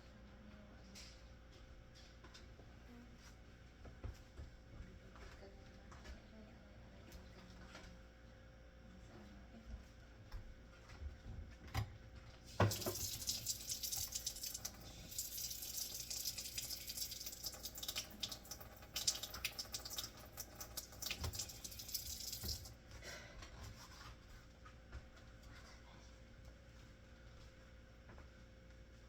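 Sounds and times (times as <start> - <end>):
tap water running into sink: 12.5 - 22.8.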